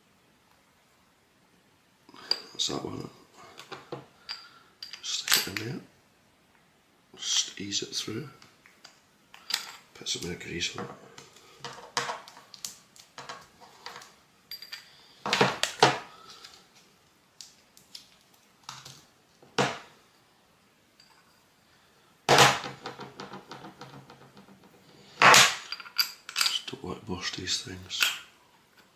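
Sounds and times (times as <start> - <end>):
metal parts clicking and knocking: 22.4 - 26.7.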